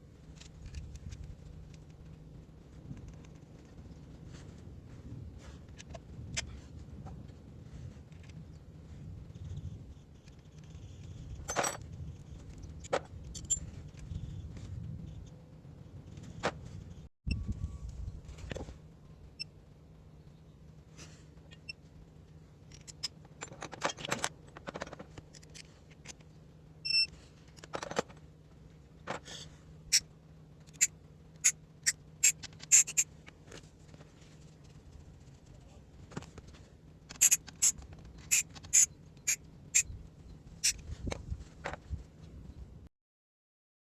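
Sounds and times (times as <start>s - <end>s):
faint low hum: 0.0s - 42.9s
metal tools clinking: 11.4s - 11.8s.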